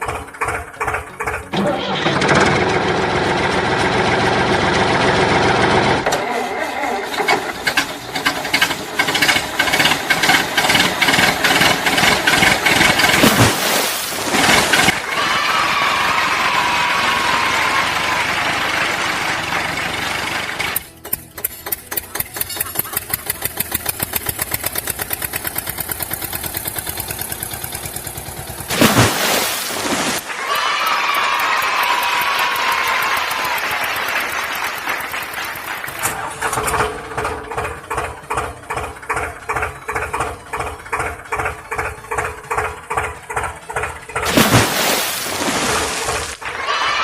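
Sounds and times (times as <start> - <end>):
tractor engine chugging: 0.0 - 13.4, 17.3 - 28.7, 31.1 - 44.3
small motor rattling: 19.8 - 28.7.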